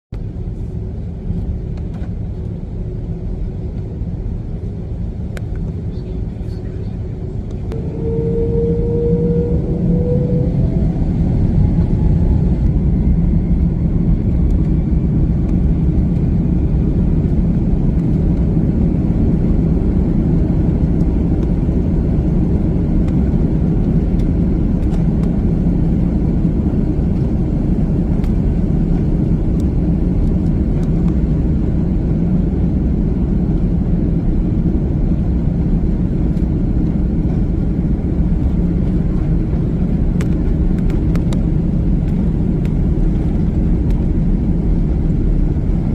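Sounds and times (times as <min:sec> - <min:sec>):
loud steady engine rumble: 0:00.2 - 0:45.9
rising engine whine: 0:00.2 - 0:45.9
jet engines spooling up: 0:05.6 - 0:19.9.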